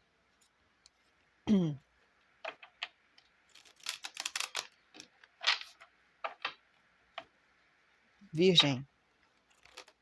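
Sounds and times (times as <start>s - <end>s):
cards being shuffled: 3.4s - 6.6s, 9.4s - 10.0s.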